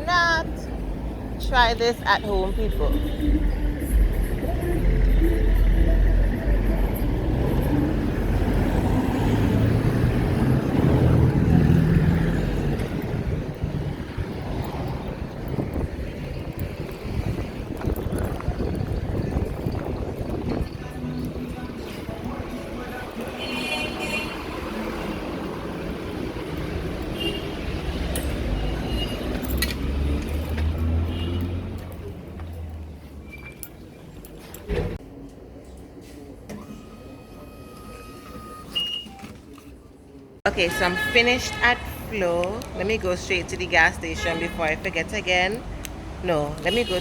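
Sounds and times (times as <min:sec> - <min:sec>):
road hum: 0:00.0 - 0:38.0, 0:39.5 - 0:47.0
vehicle engine passing: 0:03.6 - 0:23.1
wind on microphone: 0:08.2 - 0:22.5.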